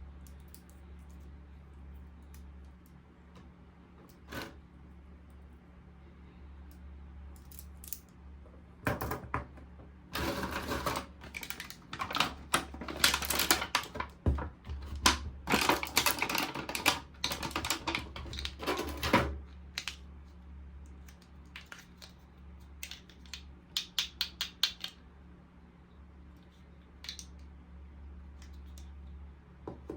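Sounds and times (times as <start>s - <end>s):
steady low hum: 0.0s - 29.9s
packaging rustling: 14.8s - 18.6s.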